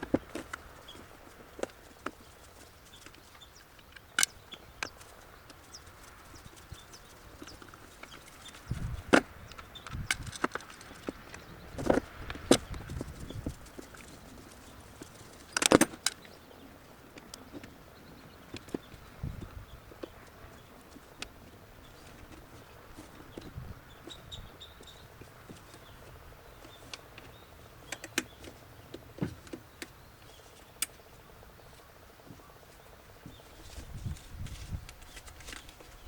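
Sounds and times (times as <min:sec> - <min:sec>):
hand tools clicking and knocking: 0:07.4 - 0:12.8, 0:15.0 - 0:16.3.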